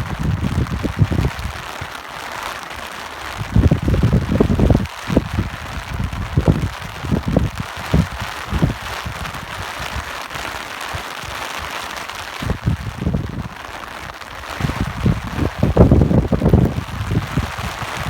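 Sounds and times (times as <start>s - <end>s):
gusts of wind rumbling: 0.0s - 1.9s, 3.3s - 10.5s, 12.2s - 18.0s
rain hiss: 0.0s - 18.0s.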